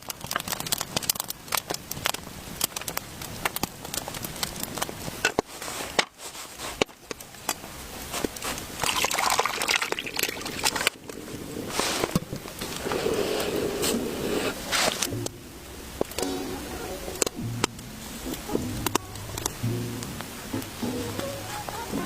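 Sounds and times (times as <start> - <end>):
liquid sloshing and pouring: 8.8 - 12.3.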